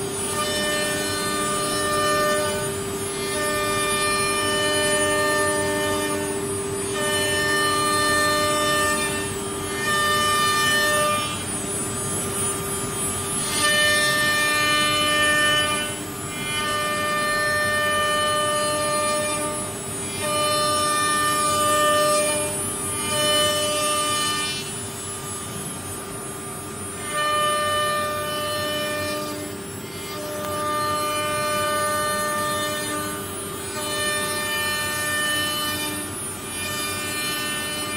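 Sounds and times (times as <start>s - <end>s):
router motor whining: 0.0s - 25.8s, 26.9s - 37.9s.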